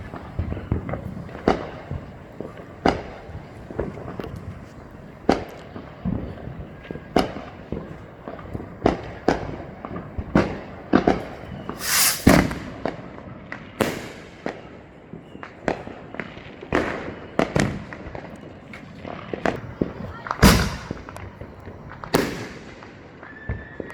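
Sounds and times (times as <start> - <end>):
fireworks bangs and pops: 0.0 - 23.3
fireworks hissing bursts: 11.7 - 12.9, 20.4 - 21.2.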